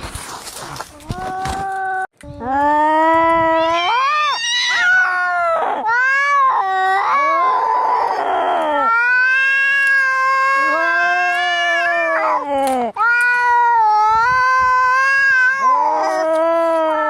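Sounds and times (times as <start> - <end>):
cats yowling: 3.4 - 12.4, 13.0 - 17.0.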